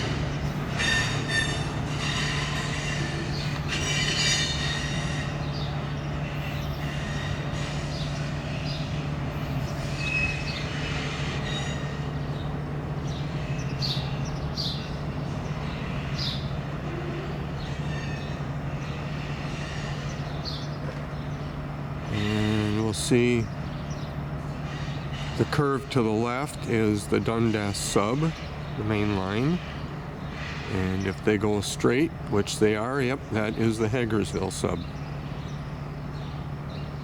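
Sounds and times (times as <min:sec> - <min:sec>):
train wheels squealing: 0:00.0 - 0:20.8, 0:24.5 - 0:26.5, 0:27.4 - 0:31.0
wheels clacking over rail joints: 0:00.0 - 0:37.0.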